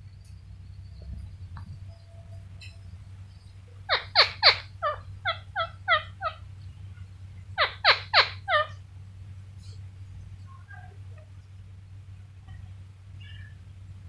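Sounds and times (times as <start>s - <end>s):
parrot screeching: 3.9s - 6.4s, 7.6s - 8.8s.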